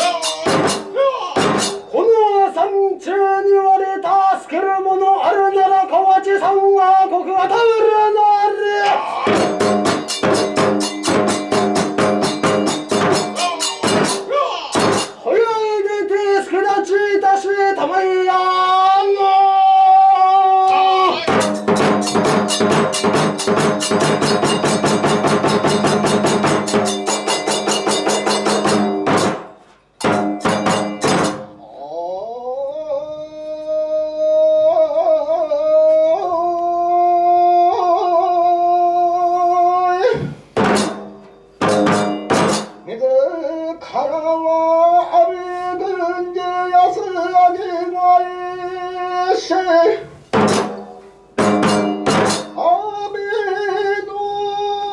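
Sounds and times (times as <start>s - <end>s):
drum roll and strikes: 0.0s - 2.0s, 9.3s - 15.2s, 21.3s - 31.6s, 40.6s - 42.9s, 50.4s - 52.6s.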